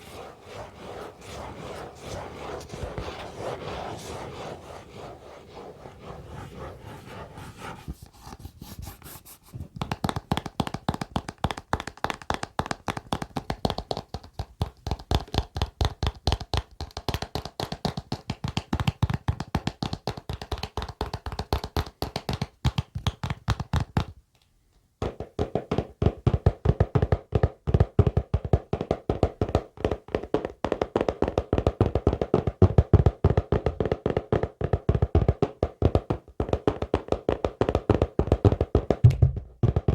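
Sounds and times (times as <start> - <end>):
rapid hand tapping: 9.7 - 24.2, 25.0 - 39.9.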